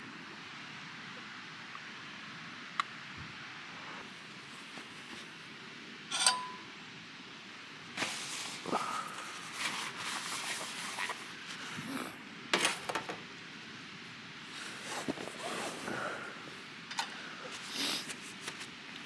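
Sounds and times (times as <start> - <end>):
tableware clinking: 6.1 - 6.8.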